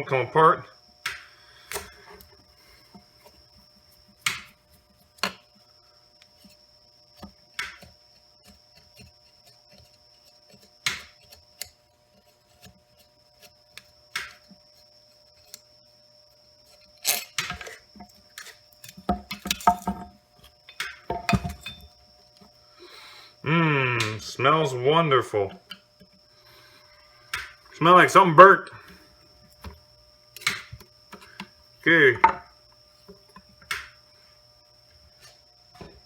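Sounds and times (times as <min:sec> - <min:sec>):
clinks and knocks: 0:19.1 - 0:21.9, 0:32.2 - 0:32.5.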